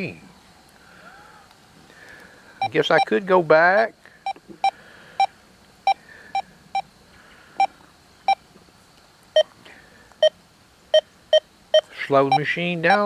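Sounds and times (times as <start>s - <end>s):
metal detector beeps: 2.6s - 3.2s, 10.2s - 13.0s.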